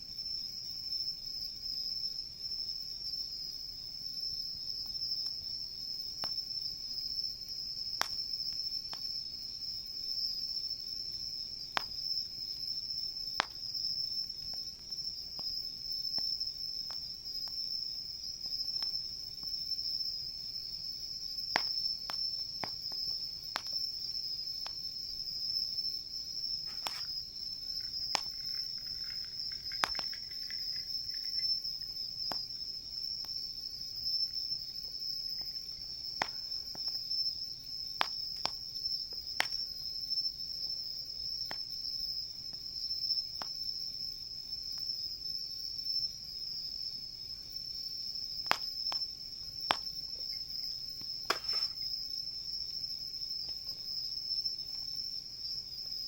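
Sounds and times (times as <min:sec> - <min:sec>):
crickets chirping: 0:00.0 - 0:56.0
campfire pops and crackles: 0:04.8 - 0:06.7, 0:07.4 - 0:09.3, 0:11.6 - 0:25.6, 0:26.4 - 0:40.1, 0:41.4 - 0:42.6, 0:43.3 - 0:43.6, 0:48.2 - 0:52.0.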